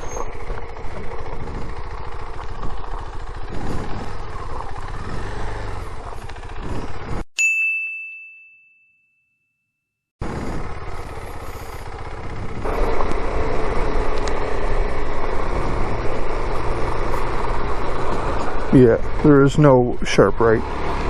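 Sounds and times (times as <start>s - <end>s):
motorcycle riding noise: 0.0s - 7.3s, 10.2s - 21.0s
wind: 0.0s - 8.4s, 10.2s - 21.0s
bright ding: 7.4s - 9.6s.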